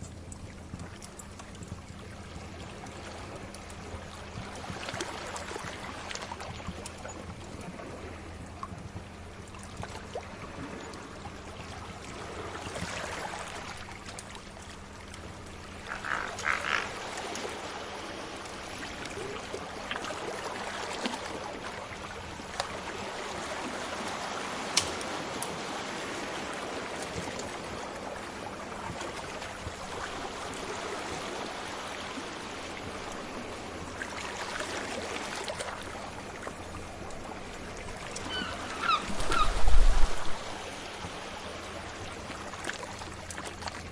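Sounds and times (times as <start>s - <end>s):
sea waves washing: 15.6s - 43.3s.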